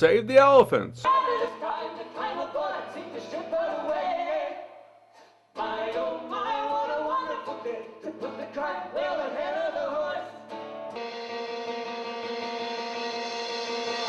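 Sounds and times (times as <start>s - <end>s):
people singing: 1.1s - 4.9s, 5.6s - 10.4s.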